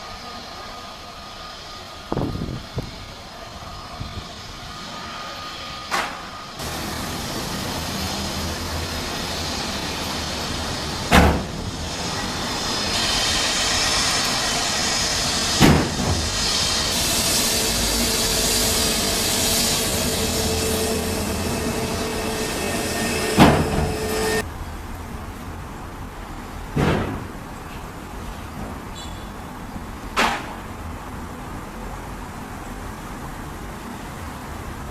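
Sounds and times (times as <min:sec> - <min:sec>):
jet engine whine and rush: 0:00.0 - 0:24.5.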